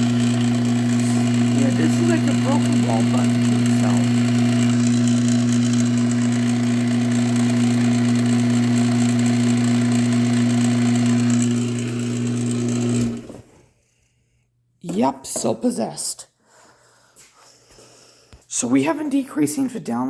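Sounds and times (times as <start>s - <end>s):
garage door opener motor humming: 0.0s - 13.4s.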